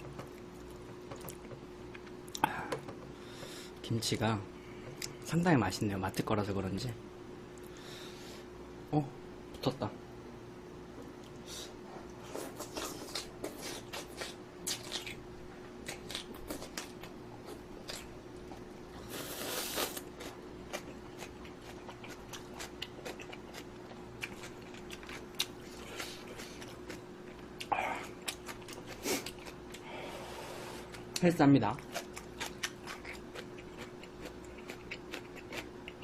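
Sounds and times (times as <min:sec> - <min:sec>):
faint steady hum: 0:00.0 - 0:36.0
chewing and mouth clicks: 0:12.4 - 0:15.2, 0:19.7 - 0:29.8, 0:30.9 - 0:36.0.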